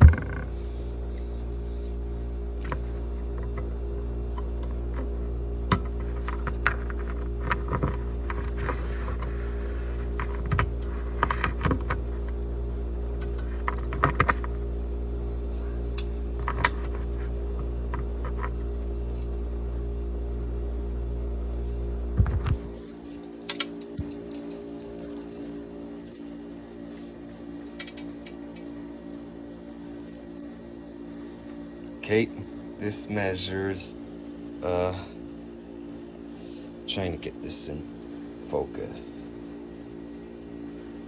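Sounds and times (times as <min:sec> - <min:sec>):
steady low hum: 0:00.0 - 0:41.0
objects being handled clicking: 0:27.5 - 0:28.7.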